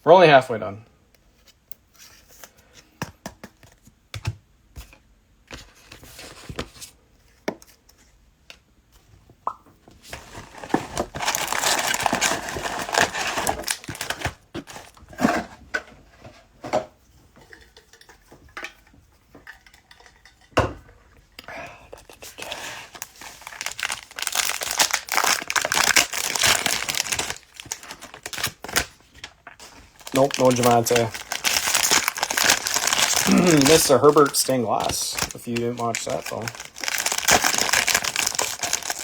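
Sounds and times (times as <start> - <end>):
plastic wrappers tearing and crinkling: 10.2 - 15.0, 22.1 - 39.0
cards clicking and rustling: 23.1 - 39.0.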